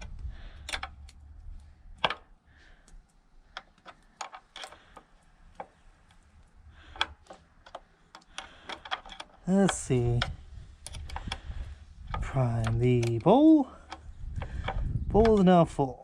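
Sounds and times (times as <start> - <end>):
hand tools tapping metal: 12.2 - 15.5.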